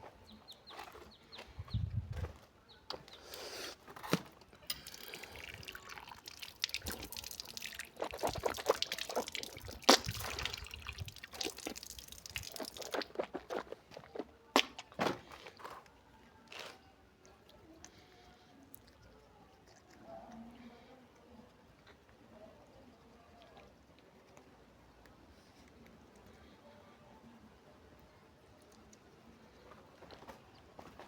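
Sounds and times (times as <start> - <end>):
water splashing and dripping: 4.7 - 13.4.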